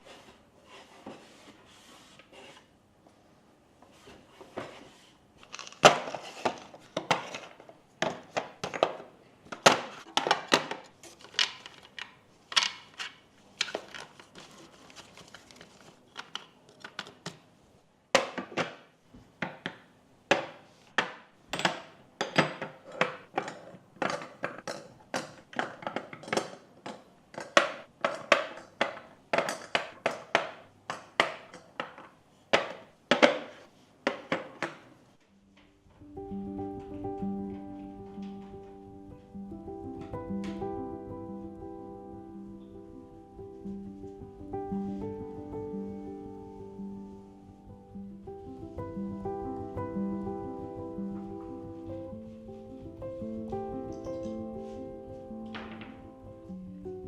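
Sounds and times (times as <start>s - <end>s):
kitchenware knocking and clinking: 5.6s - 11.6s, 19.4s - 34.9s.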